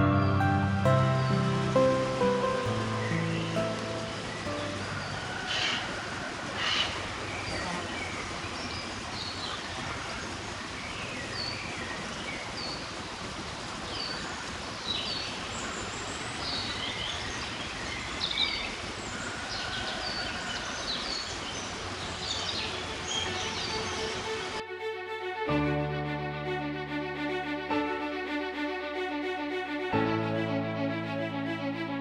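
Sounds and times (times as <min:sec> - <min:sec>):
steady background hiss: 0:00.0 - 0:07.4
wild birds chirping: 0:00.0 - 0:08.2.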